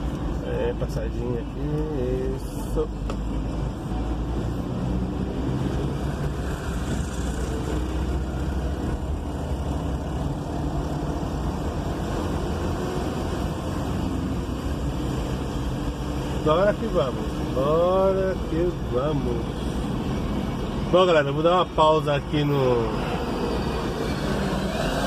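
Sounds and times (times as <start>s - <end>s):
engine rumble inside vehicle: 0.0s - 25.0s
road noise: 0.0s - 25.0s.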